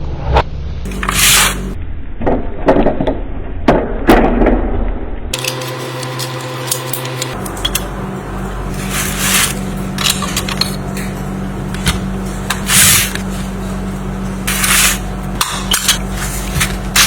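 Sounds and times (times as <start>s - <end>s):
steady hum: 0.0s - 2.0s, 5.3s - 17.0s
rasping rubbing strokes: 0.9s - 1.8s, 8.7s - 10.9s, 11.8s - 17.0s.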